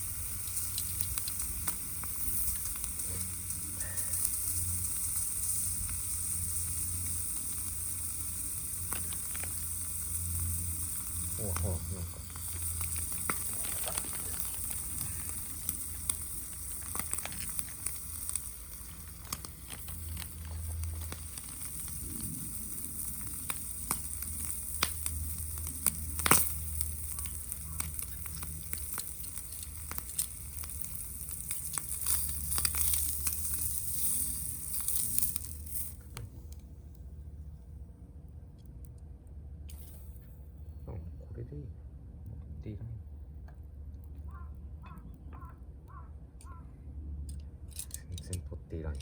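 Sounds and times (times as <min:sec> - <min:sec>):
food sizzling in a pan: 0:00.0 - 0:36.1
oil popping and spitting: 0:00.0 - 0:36.2.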